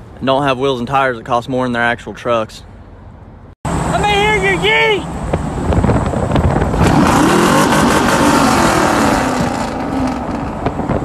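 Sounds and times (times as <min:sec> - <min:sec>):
truck engine revving: 0:05.6 - 0:11.0.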